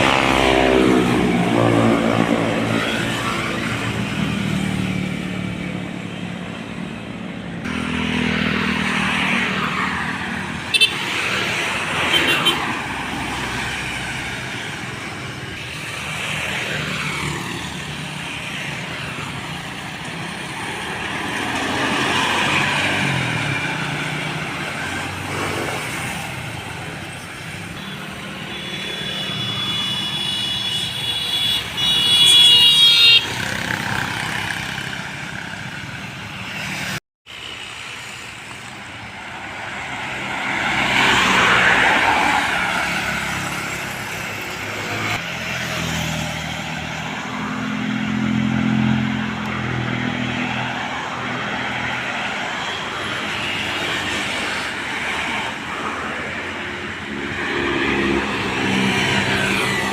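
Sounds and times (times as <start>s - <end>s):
vehicles passing: 0.0s - 59.9s
vehicle horn: 10.7s - 11.1s, 27.8s - 33.4s.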